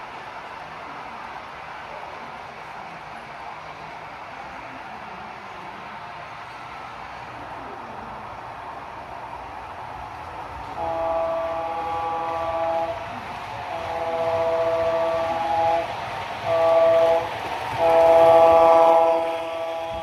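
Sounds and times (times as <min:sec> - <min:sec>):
train horn blasts: 0:10.7 - 0:20.0.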